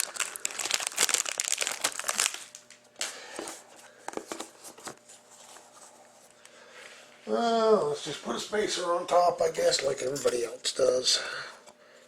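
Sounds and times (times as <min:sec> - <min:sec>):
packaging crinkling and rustling: 0:00.0 - 0:02.8.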